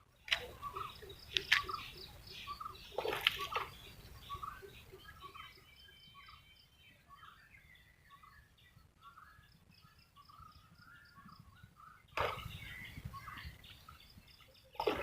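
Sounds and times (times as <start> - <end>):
birds chirping: 0.0 - 15.0
water splashing: 0.3 - 2.0, 2.8 - 4.0, 12.2 - 12.9, 14.7 - 15.0.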